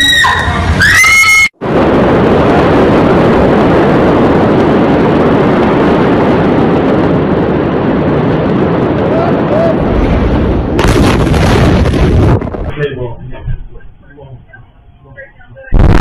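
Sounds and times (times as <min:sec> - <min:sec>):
high-pitched scream: 0:00.0 - 0:01.6
explosion blast roaring: 0:00.4 - 0:13.8, 0:15.7 - 0:16.0.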